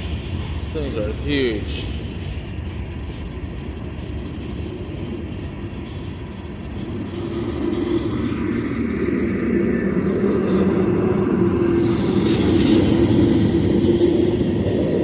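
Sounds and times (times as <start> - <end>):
freight train rumbling on rails: 0.0 - 15.0
steady hum: 0.0 - 15.0.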